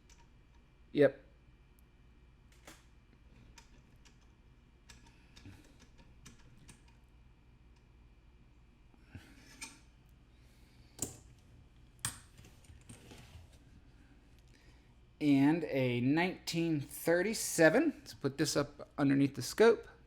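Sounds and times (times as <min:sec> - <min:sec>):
small clicks and taps: 0:11.0 - 0:11.2.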